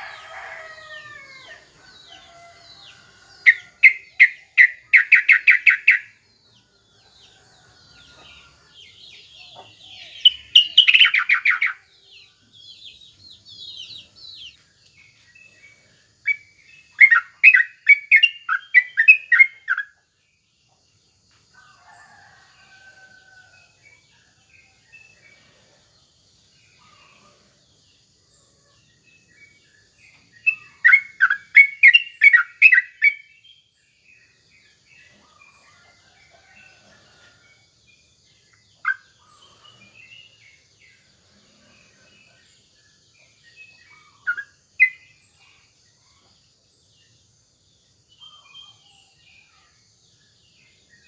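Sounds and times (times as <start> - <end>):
small birds chirping: 0.0 - 23.4, 28.4 - 50.8.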